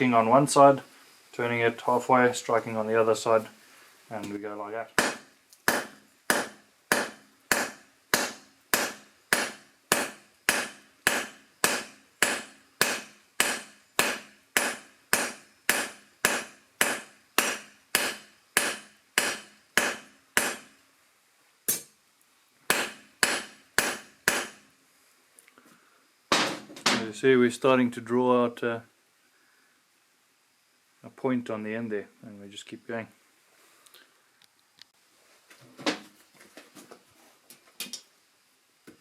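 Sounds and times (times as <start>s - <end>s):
hammer striking steel on anvil: 5.0s - 20.7s, 21.7s - 21.9s, 22.7s - 24.6s.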